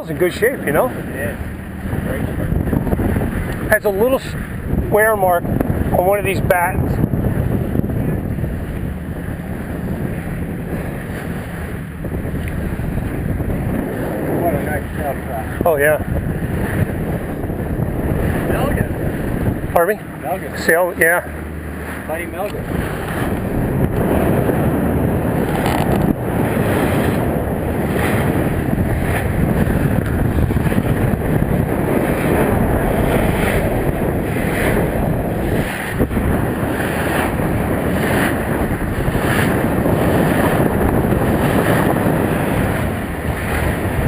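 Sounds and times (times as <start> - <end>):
water rushing along hull: 0.0 - 44.0
wind buffeting microphone: 0.0 - 44.0.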